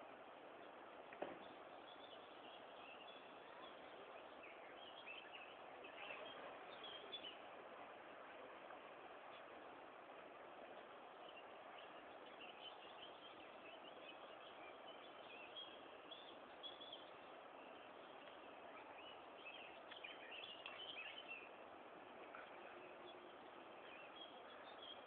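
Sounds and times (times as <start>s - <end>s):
faint bird chirps: 1.2s - 7.5s, 11.2s - 21.6s, 22.3s - 25.0s.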